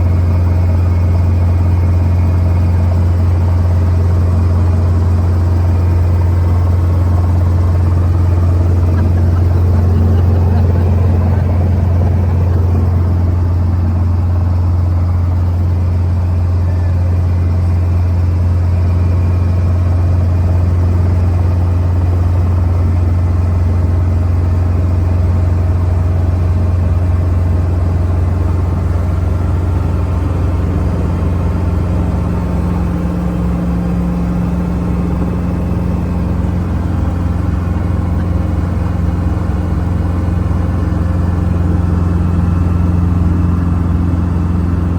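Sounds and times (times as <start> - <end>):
helicopter low drone: 0.0 - 44.9
higher hum: 6.2 - 16.2.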